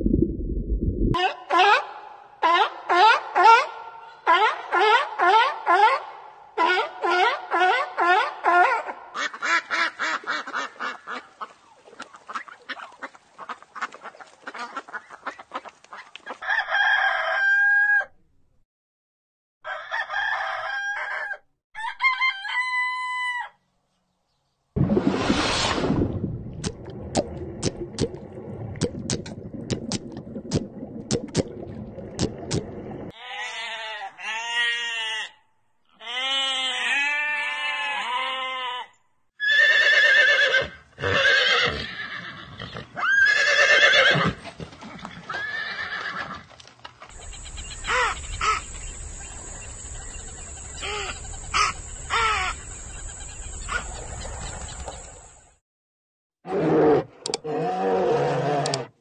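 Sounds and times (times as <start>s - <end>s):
horses neighing: 39.4s - 46.5s.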